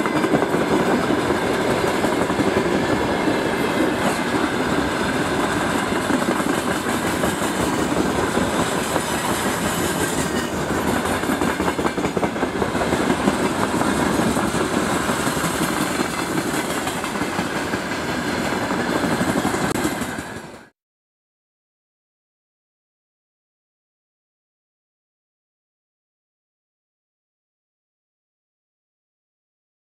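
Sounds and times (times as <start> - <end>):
wagons clacking over rail joints: 0.0 - 20.6
freight train rumbling past: 0.0 - 20.7.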